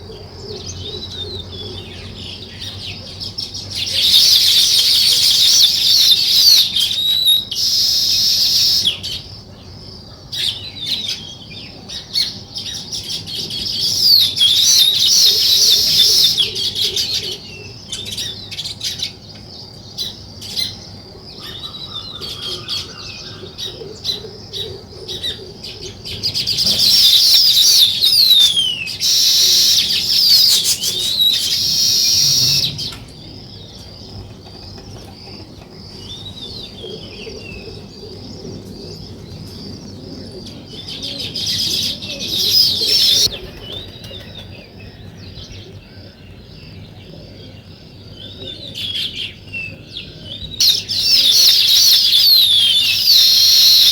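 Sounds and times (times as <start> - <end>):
songbirds chirping: 0.0 - 53.9.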